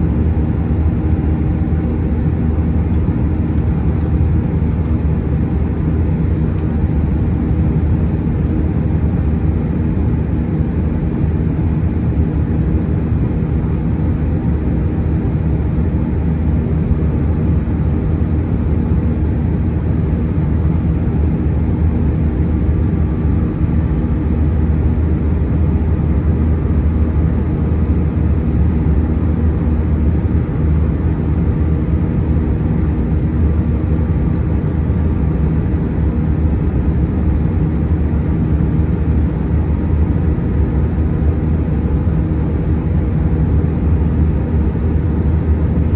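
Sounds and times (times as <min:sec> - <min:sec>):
airliner engines humming: 0:00.0 - 0:45.9.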